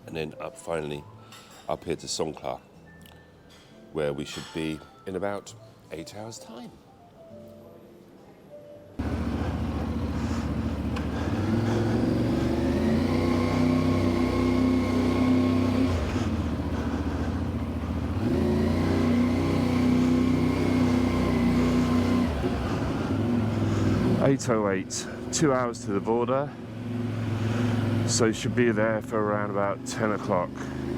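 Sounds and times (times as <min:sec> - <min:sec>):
motorcycle engine revving: 0:09.0 - 0:30.9.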